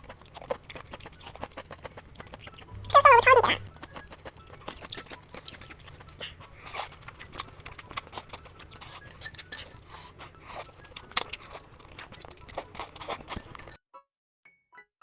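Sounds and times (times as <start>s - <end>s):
food crunching and chewing: 0.0s - 13.8s.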